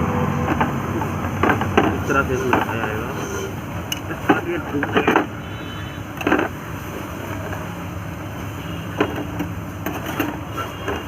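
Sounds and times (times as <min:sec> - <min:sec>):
engine parts knocking: 0:00.4 - 0:03.1, 0:03.8 - 0:05.4, 0:06.1 - 0:07.8, 0:08.9 - 0:11.0.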